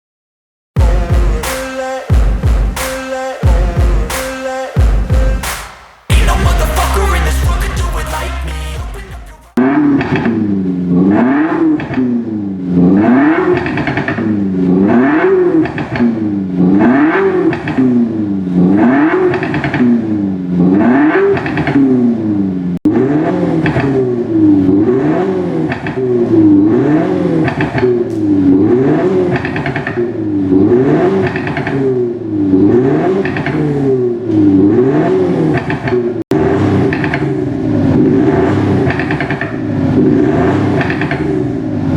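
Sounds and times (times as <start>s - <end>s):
exhaust note revving: 0.8s - 21.2s, 36.3s - 41.9s.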